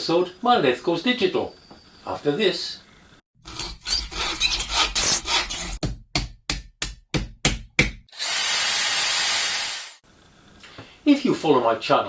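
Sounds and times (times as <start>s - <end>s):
rasping strokes: 3.4s - 5.8s.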